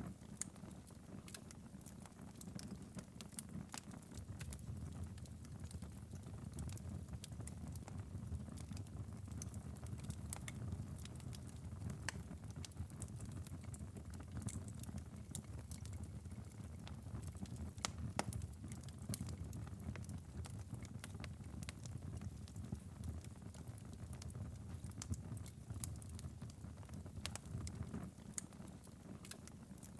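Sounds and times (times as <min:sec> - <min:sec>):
fireplace fire crackling: 0:00.0 - 0:29.9.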